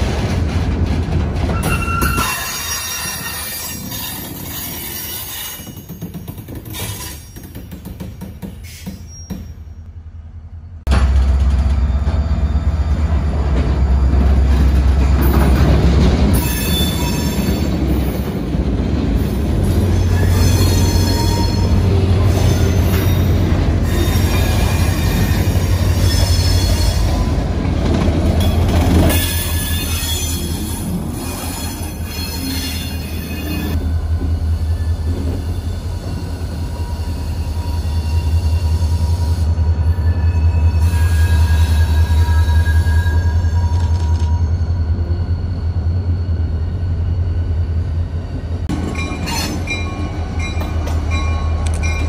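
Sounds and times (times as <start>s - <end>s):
train wheels squealing on rails: 1.5s - 9.9s, 11.2s - 18.3s, 19.2s - 27.5s, 28.4s - 52.0s
diesel locomotive drone: 9.8s - 52.0s.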